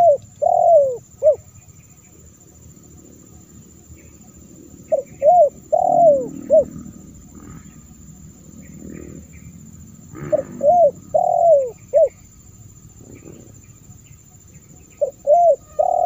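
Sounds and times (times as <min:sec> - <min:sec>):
dove cooing: 0:00.0 - 0:01.5, 0:02.8 - 0:16.0.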